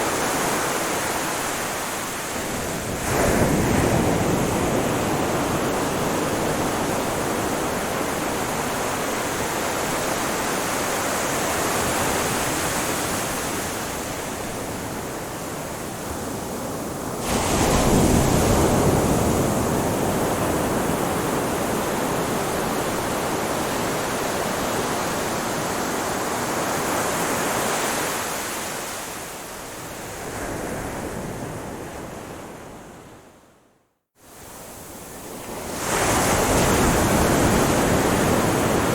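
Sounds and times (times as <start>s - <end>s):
ocean waves washing onto shore: 0.0s - 33.0s, 34.3s - 38.9s.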